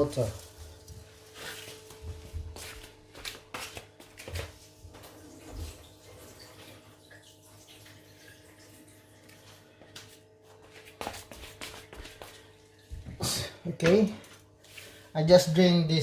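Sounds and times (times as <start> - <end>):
water dripping: 5.0 - 10.0, 12.2 - 14.4.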